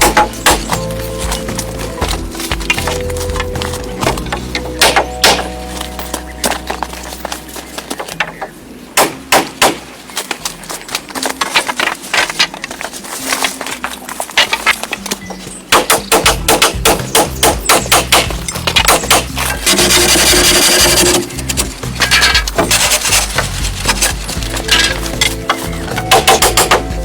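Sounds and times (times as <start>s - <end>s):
sharp strikes on wood: 0.0s - 0.9s, 4.0s - 5.6s, 8.0s - 9.9s, 15.7s - 21.3s, 25.9s - 27.0s.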